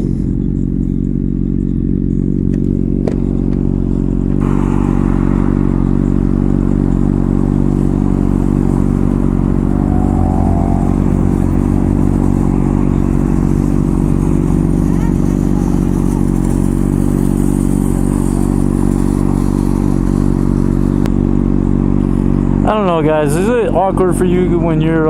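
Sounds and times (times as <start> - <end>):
motorcycle engine at low speed: 0.0 - 25.0
broad rushing noise: 4.4 - 15.8.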